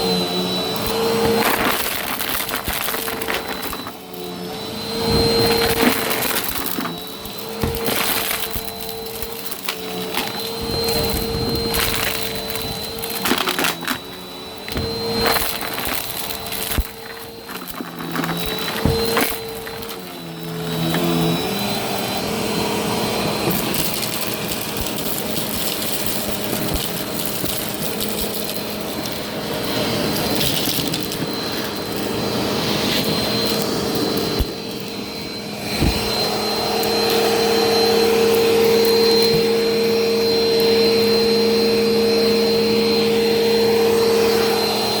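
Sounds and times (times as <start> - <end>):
vacuum cleaner running: 0.0 - 45.0
debris crackling in vacuum: 0.2 - 22.3.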